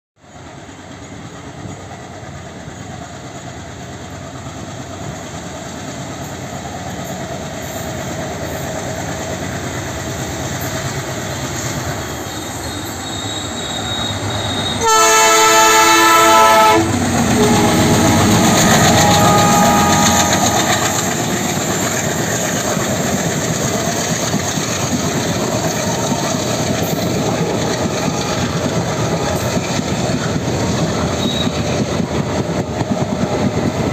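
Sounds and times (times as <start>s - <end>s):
diesel locomotives passing: 0.2s - 33.9s
train horn: 12.8s - 21.6s, 31.2s - 31.6s
wheels clacking over rail joints: 15.4s - 33.9s.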